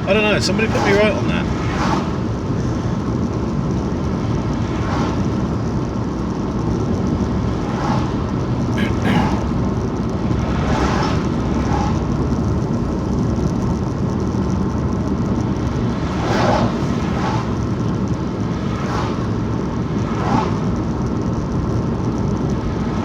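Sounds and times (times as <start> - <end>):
car cabin road and engine noise: 0.0 - 23.0.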